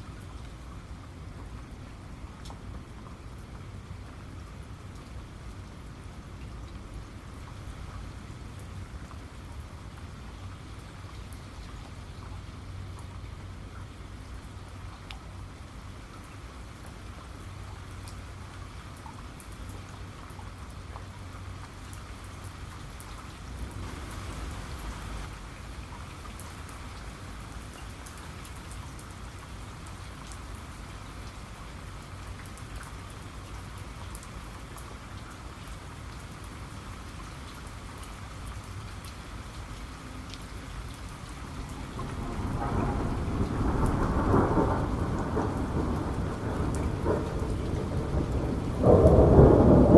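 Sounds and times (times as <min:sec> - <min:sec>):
steady rain: 0:00.0 - 0:49.9
low rumble of thunder: 0:41.4 - 0:49.9.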